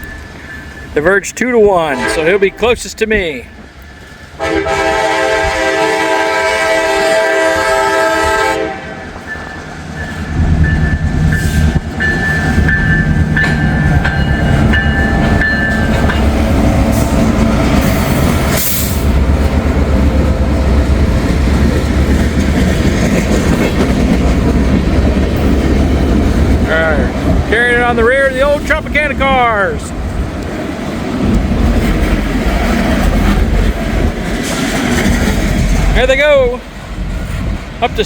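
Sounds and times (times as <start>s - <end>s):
train rumbling past: 0.0s - 38.0s
locomotive horn: 1.8s - 2.9s, 4.4s - 9.3s
wheels clattering over rails: 9.2s - 29.4s, 30.9s - 38.0s.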